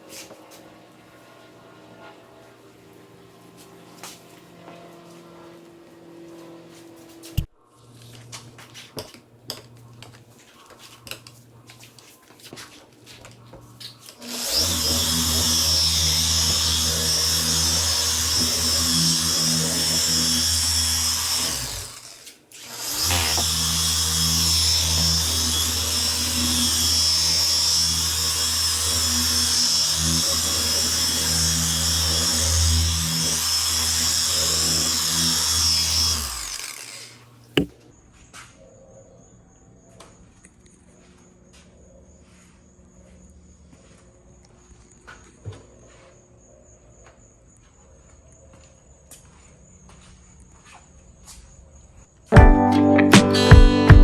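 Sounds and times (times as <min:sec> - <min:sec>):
electric power tool whining: 0:14.0 - 0:37.7.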